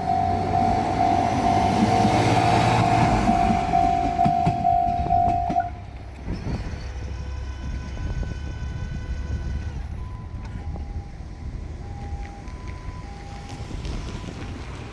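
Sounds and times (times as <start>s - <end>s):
level crossing alarm ringing: 0.0s - 5.8s
diesel railcar engine rumble: 0.0s - 14.9s.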